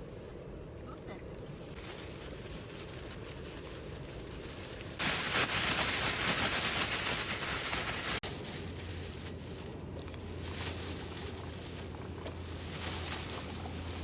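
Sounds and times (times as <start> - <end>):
loud steady hiss: 4.5 - 9.6.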